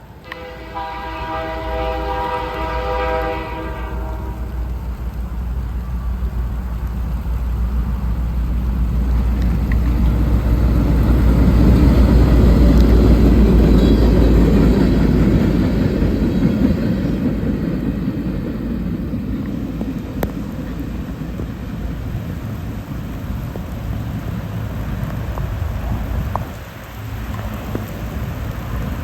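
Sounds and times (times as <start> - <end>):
diesel train passing: 0.0 - 29.0
pouring rain: 0.0 - 29.0.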